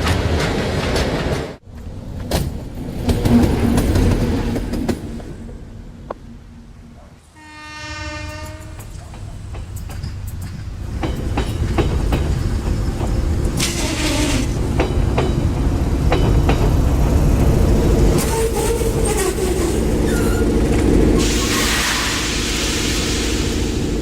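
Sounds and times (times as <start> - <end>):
wheels clacking over rail joints: 0.0 - 6.2, 8.3 - 21.4
train rumbling past: 0.0 - 24.0
wheel squeal: 18.2 - 20.6.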